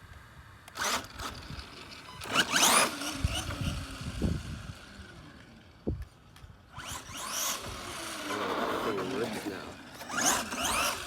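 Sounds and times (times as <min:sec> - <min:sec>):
electric motor whine: 0:00.7 - 0:06.0, 0:06.6 - 0:11.0.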